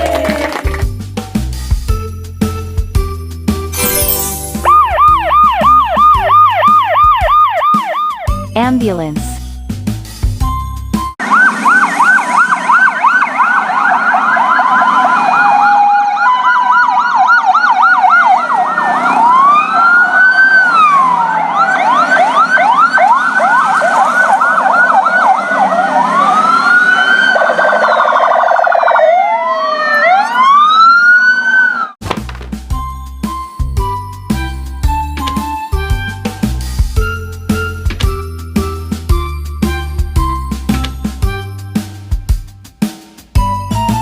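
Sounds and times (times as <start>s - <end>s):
ambulance siren yelp and wail: 3.9s - 8.5s, 11.2s - 32.0s.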